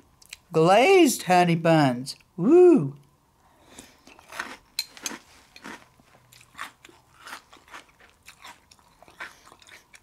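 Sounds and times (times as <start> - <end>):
person chewing crunchy cereal: 3.7 - 10.0.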